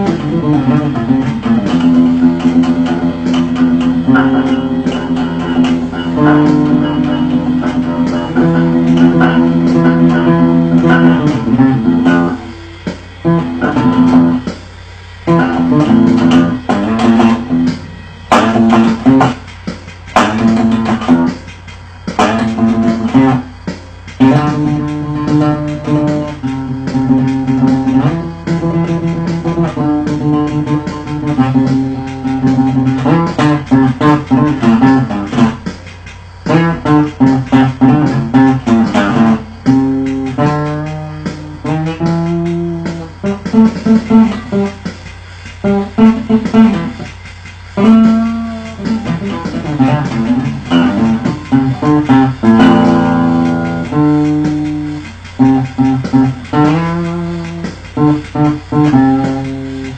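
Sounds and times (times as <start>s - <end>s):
acoustic guitar low plucked notes: 0.0s - 59.9s.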